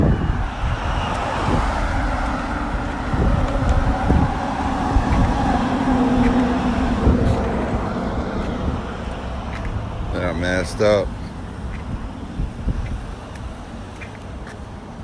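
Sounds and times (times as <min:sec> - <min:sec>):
low motor drone: 0:00.0 - 0:10.2
wind buffeting microphone: 0:00.0 - 0:15.0.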